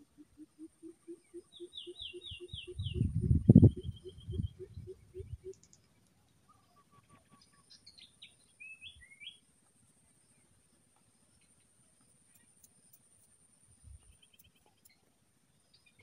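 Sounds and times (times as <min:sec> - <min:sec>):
birds chirping: 0:01.0 - 0:09.4.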